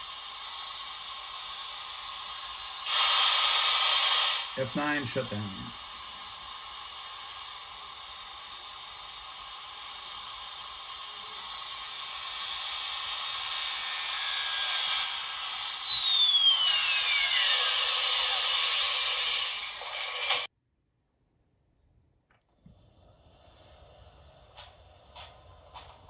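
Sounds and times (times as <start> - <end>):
falling whine: 0.0 - 20.5
steam hiss from small speaker: 0.0 - 20.5, 22.9 - 26.0.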